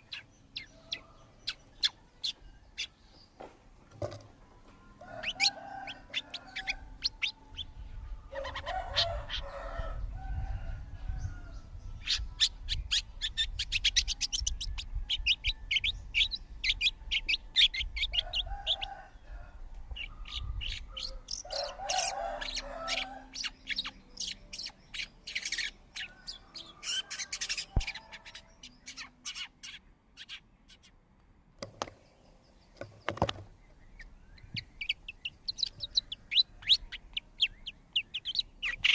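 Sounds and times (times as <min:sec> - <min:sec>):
small birds chirping: 0:00.0 - 0:31.0, 0:31.6 - 0:38.9
harsh bird calls: 0:05.0 - 0:10.1, 0:19.9 - 0:31.0, 0:31.8 - 0:38.9.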